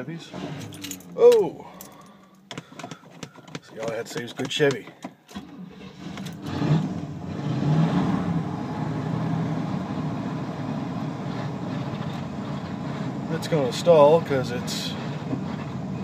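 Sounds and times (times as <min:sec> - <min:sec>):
van engine idling rough: 0:08.3 - 0:16.0.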